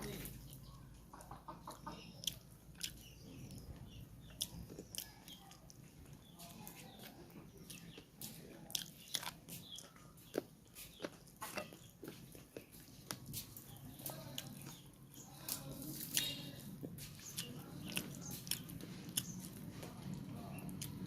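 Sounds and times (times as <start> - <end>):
mouth clicks and smacks: 1.7 - 3.7, 4.3 - 5.8
chewing and biting: 2.2 - 14.8, 15.4 - 21.0.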